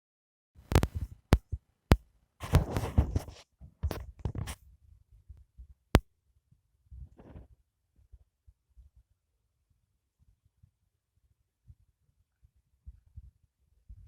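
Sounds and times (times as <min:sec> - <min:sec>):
rustling of handling: 0:02.4 - 0:04.6.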